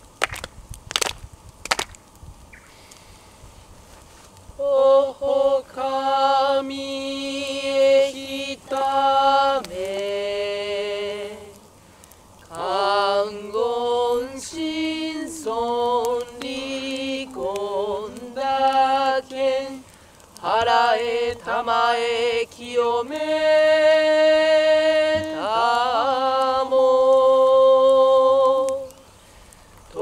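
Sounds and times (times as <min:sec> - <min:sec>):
person chanting prayer: 0:04.6 - 0:11.6, 0:12.5 - 0:19.8, 0:20.4 - 0:29.0.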